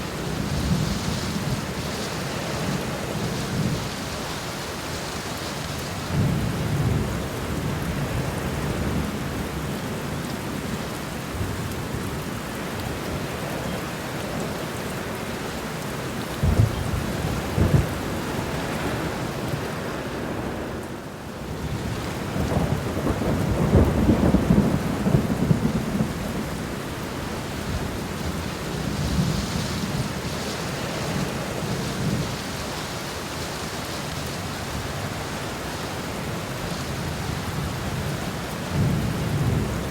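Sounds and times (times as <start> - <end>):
steady rain: 0.0 - 39.9
thunder rumbling: 16.3 - 20.7, 21.7 - 32.5.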